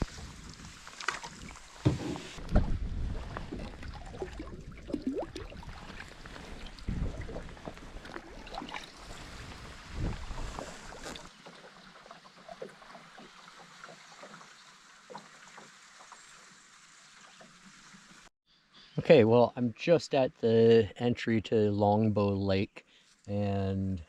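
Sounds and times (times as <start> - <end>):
paddle strokes and splashes: 0.0 - 18.3
wind buffeting microphone: 2.3 - 6.0, 6.6 - 8.0, 9.2 - 10.8.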